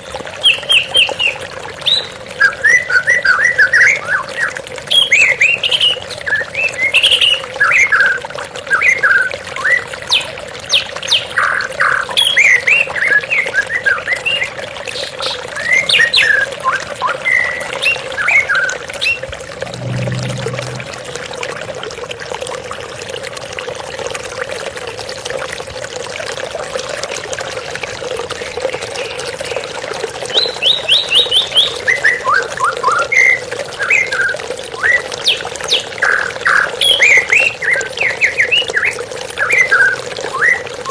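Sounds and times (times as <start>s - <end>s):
running water: 0.0s - 40.9s
bird singing whistles and chirps: 36.0s - 40.9s.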